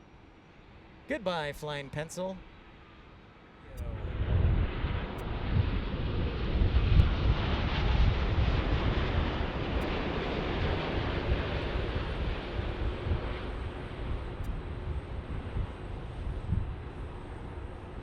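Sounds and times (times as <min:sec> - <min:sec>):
jet engine rumble: 0:00.0 - 0:18.0.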